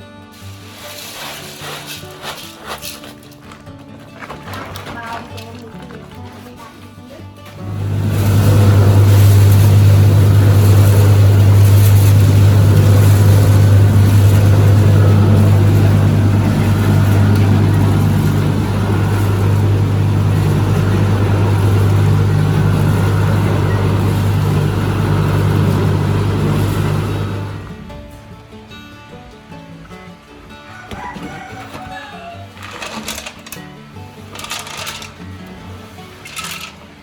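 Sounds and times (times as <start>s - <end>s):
motor humming: 7.5s - 28.1s.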